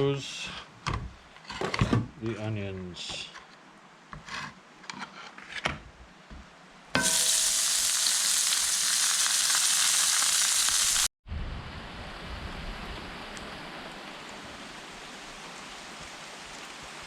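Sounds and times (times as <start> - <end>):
onions sizzling in a pan: 7.0 - 11.1.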